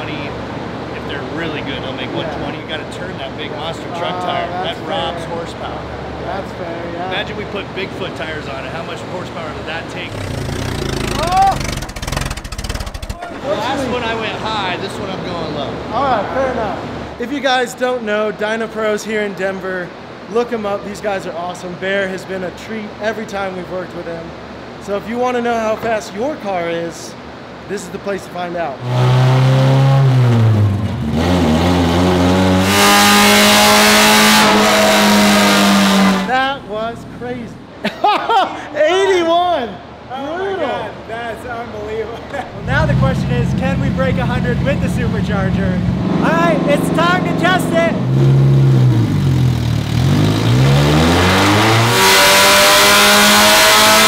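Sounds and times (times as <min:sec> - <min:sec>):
car engine revving at full throttle: 0:10.0 - 0:13.2, 0:28.8 - 0:36.4, 0:42.6 - 0:54.0.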